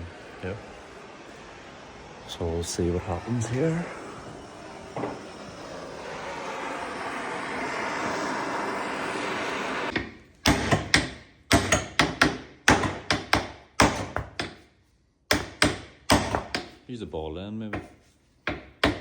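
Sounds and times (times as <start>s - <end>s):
steady hiss: 0.0s - 9.9s.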